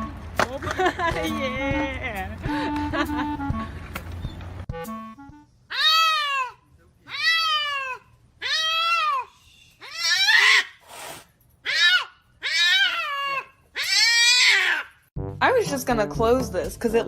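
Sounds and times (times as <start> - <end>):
cat meowing: 5.7 - 10.7.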